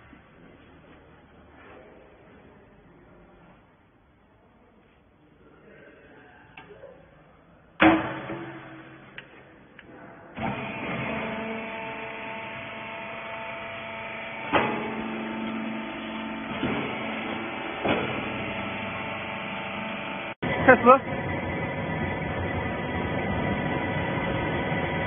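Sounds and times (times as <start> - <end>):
loud metal bang: 7.8 - 9.2
motor and hydraulic pump humming: 10.4 - 25.0.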